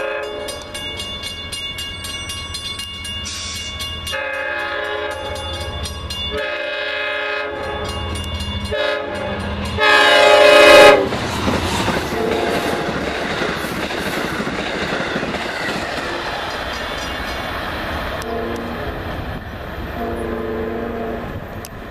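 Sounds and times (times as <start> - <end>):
train horn blasts: 0.0 - 0.6, 4.1 - 5.7, 6.3 - 11.2, 12.1 - 12.8, 18.2 - 19.0, 20.0 - 21.5
train wheels rumbling on rails: 0.0 - 21.9.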